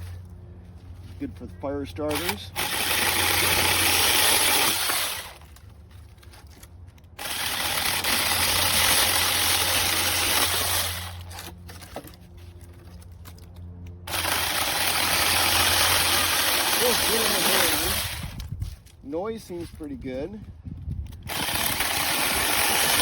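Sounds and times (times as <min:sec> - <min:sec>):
electric chainsaw cutting sticks: 0:02.1 - 0:05.6, 0:07.0 - 0:12.1, 0:14.0 - 0:18.5, 0:21.2 - 0:23.0.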